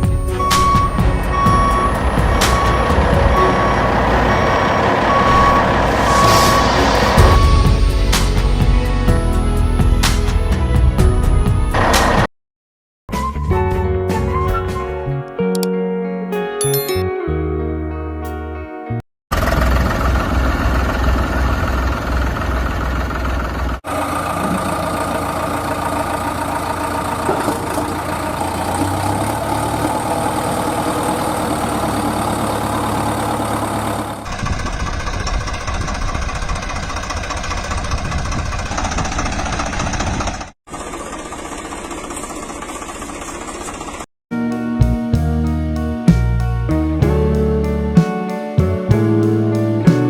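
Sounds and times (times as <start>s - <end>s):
engine running: 0.0s - 8.9s, 19.3s - 44.1s.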